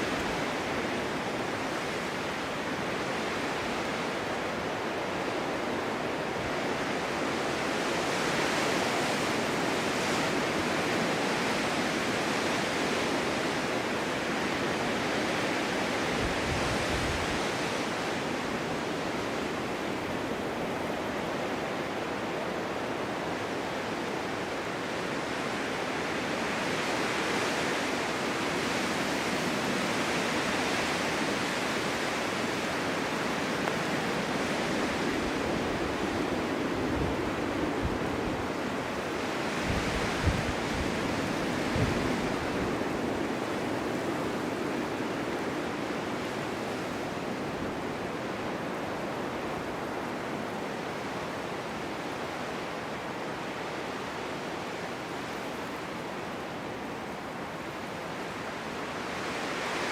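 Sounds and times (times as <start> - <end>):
low wind buffet: 0.0 - 59.9
wind gusting: 12.7 - 59.9.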